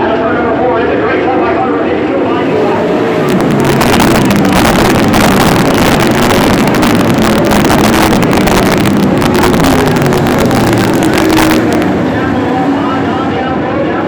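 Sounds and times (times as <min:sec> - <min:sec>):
sprint car engines racing: 0:00.0 - 0:14.0
wind noise on microphone: 0:02.4 - 0:12.8
harsh crackle: 0:02.4 - 0:13.0.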